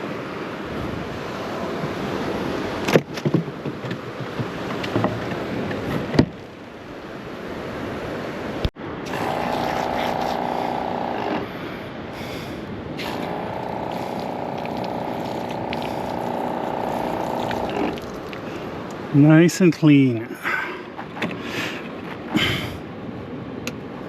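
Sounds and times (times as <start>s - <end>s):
wind: 0.0s - 24.0s
steady motor hum: 8.9s - 19.0s.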